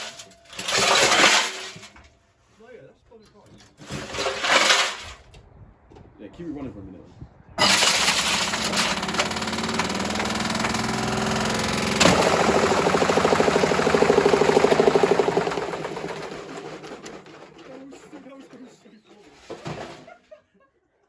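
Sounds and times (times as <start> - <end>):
washing machine spinning and rattling: 7.6 - 18.4
washing machine knocking: 11.8 - 17.6.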